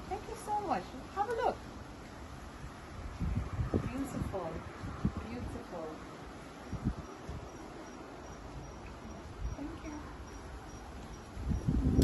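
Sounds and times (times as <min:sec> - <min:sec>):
cricket chirping: 0:06.7 - 0:11.3.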